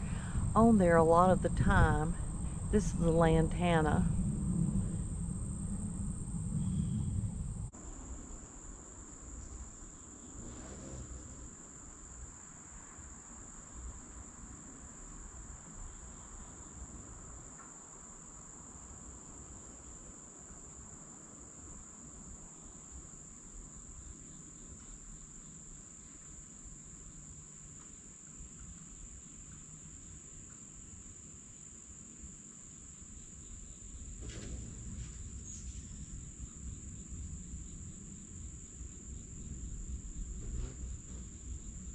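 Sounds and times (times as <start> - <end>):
low rumble: 0.0 - 7.8
insect chorus: 0.0 - 41.9.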